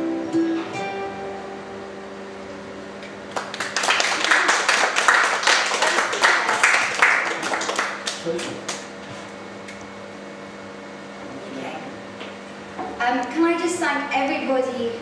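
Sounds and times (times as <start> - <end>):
guitar note: 0.0 - 3.1
audience applauding: 3.3 - 8.9.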